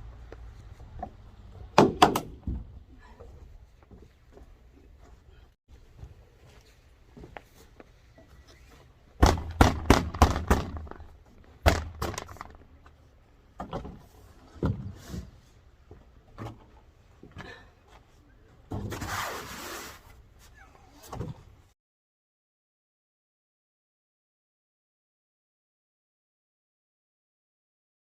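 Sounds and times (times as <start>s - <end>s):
sharp knocks: 1.8s - 2.6s, 9.2s - 11.0s, 11.6s - 12.6s.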